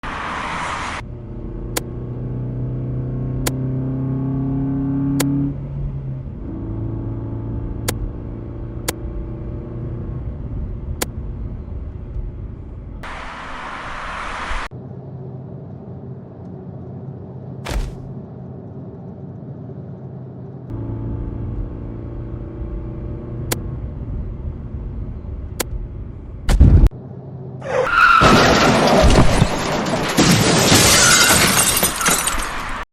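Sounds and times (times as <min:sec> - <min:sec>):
car engine running: 0:01.0 - 0:13.3, 0:14.7 - 0:27.5
sharp thump: 0:17.6 - 0:18.1.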